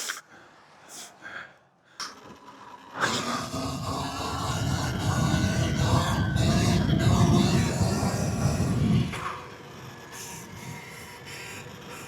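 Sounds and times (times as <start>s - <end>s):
heavy breathing: 0.0s - 2.2s.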